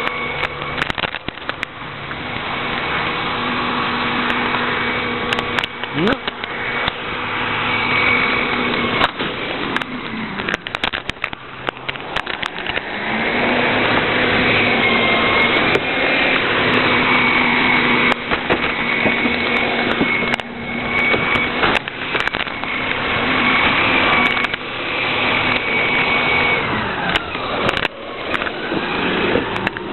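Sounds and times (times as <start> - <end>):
garbage truck engine running: 0.0 - 29.9
high whine: 0.0 - 29.9
knocks and clanks: 18.1 - 23.0.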